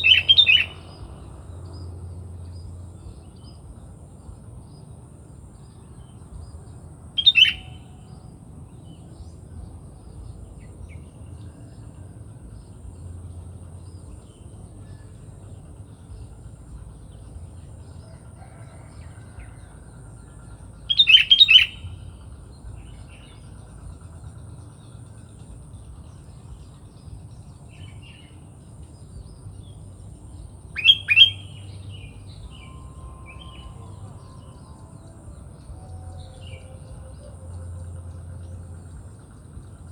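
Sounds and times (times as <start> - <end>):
bird chirping calls: 0.0 - 1.2, 7.2 - 8.2, 20.4 - 24.8, 25.9 - 39.9.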